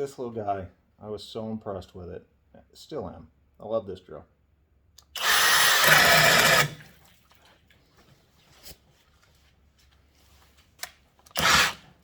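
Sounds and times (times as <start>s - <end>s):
hammer drill boring into wood: 5.1s - 6.8s, 11.3s - 11.9s.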